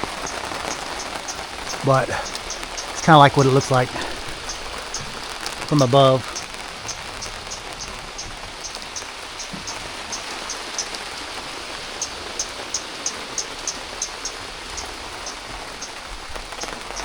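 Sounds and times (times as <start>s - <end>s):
steady rain falling: 0.0s - 17.0s
high-pitched chirps: 0.2s - 10.9s.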